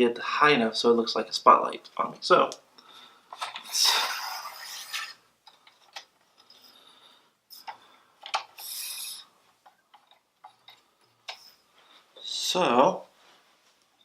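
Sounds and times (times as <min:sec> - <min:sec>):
metal stand sections sliding: 0:03.4 - 0:05.2.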